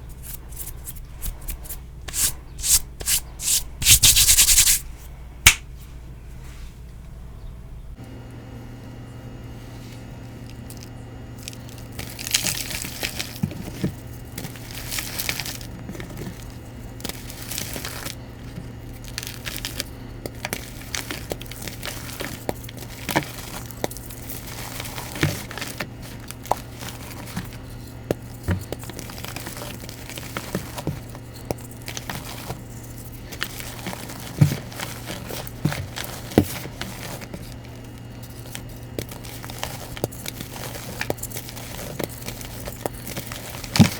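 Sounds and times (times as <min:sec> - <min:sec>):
powder blocks crunching by hand: 0:00.0 - 0:04.8, 0:10.7 - 0:43.9.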